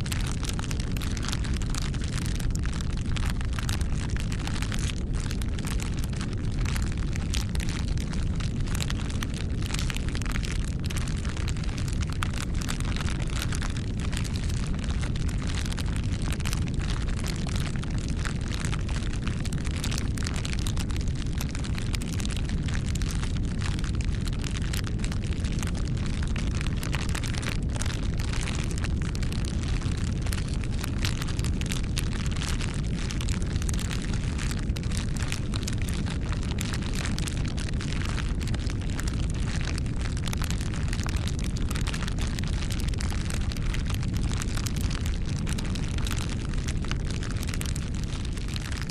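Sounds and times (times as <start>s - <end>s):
burning wood crackling: 0.0s - 48.9s
campfire flames rushing: 0.0s - 48.9s.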